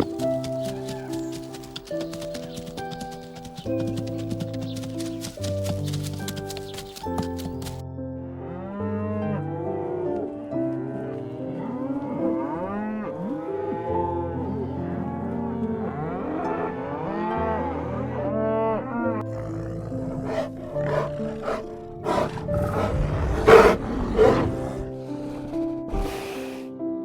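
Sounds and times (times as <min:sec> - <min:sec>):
soft background music: 0:00.0 - 0:27.0
cattle mooing: 0:11.1 - 0:26.4.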